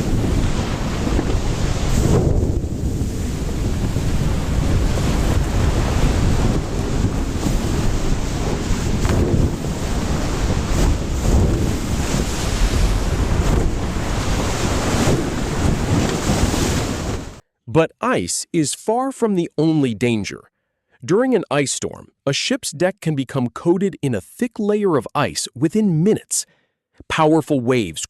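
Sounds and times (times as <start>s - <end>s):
sea waves rushing: 0.0s - 17.4s
wind buffeting microphone: 0.0s - 17.4s.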